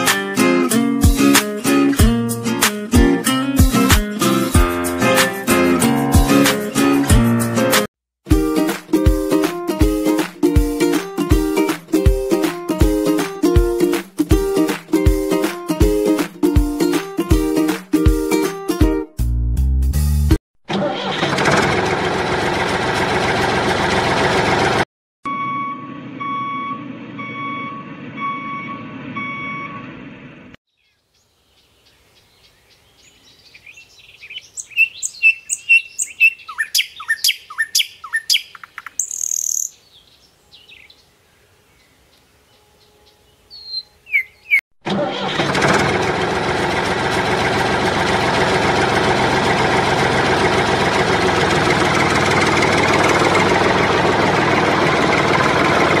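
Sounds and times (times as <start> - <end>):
tractor engine running: 20.7 - 30.2, 44.8 - 56.0
evenly spaced beeps: 25.3 - 29.8
bird chirps: 30.7 - 44.6.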